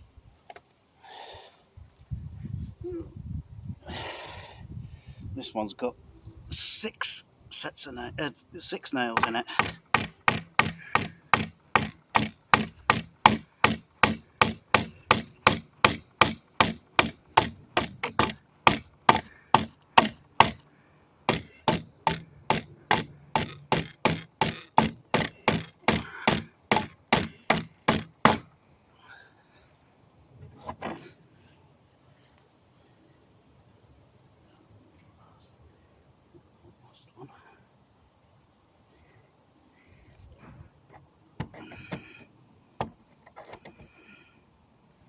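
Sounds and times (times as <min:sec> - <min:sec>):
hammer striking wooden plank: 0:09.2 - 0:20.6, 0:21.3 - 0:28.5.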